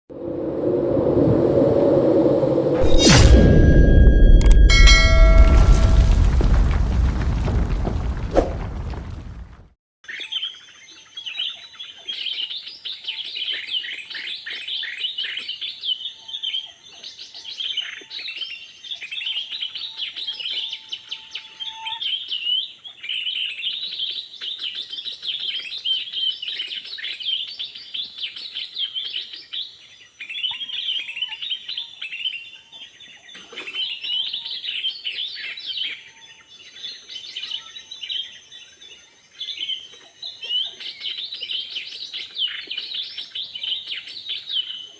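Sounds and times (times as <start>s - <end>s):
birds chirping and trilling: 10.1s - 44.9s.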